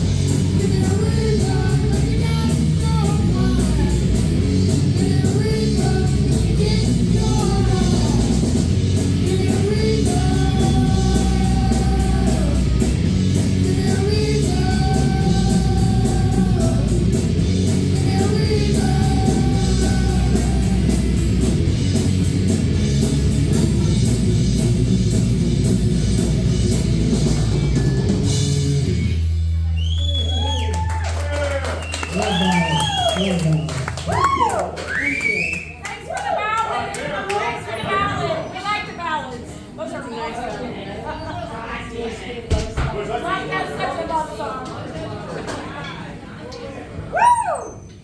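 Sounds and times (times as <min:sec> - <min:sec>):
live rock band playing: 0:00.0 - 0:29.7
person singing: 0:00.2 - 0:21.4.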